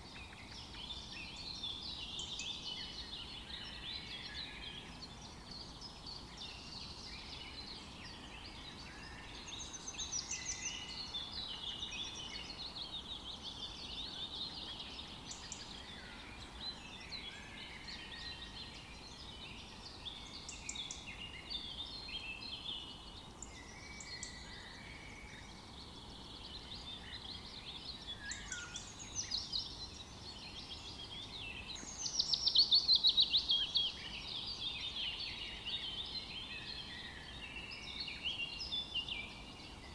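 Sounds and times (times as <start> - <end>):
faint background hiss: 0.0 - 39.9
songbirds singing: 0.0 - 39.9
bird trill: 26.5 - 34.9.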